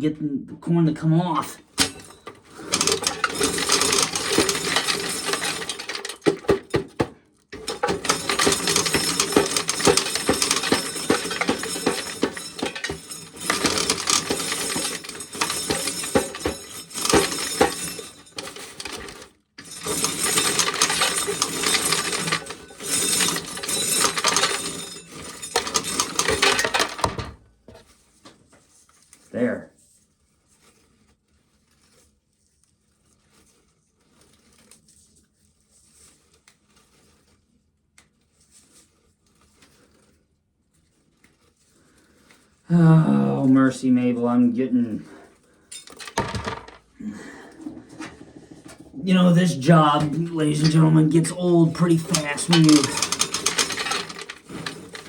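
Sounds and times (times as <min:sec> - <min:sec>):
corn sheller rattling: 0:01.5 - 0:27.4, 0:42.8 - 0:55.0.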